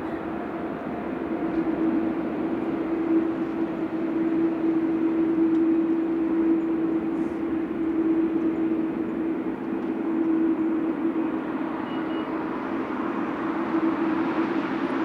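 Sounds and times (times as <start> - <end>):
jet engines roaring: 10.7 - 15.0.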